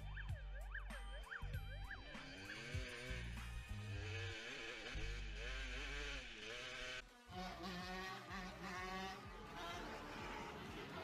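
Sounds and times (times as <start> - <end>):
motorcycle engine revving: 1.4 - 11.0.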